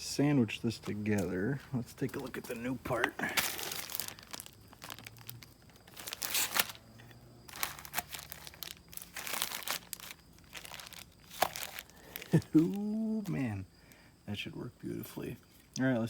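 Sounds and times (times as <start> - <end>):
packaging crinkling and tearing: 2.1 - 6.8, 7.5 - 13.3.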